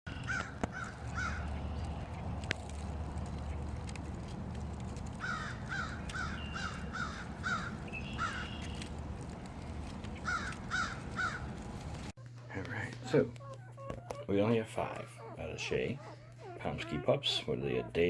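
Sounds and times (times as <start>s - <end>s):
crow cawing: 0.1s - 1.6s, 5.2s - 8.8s, 10.2s - 11.5s.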